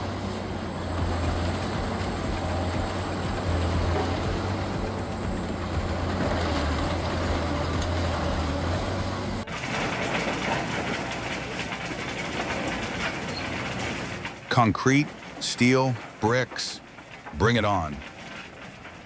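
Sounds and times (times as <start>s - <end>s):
industrial machinery hum and grinding: 0.0s - 14.5s
noisier machine sound: 0.0s - 16.6s.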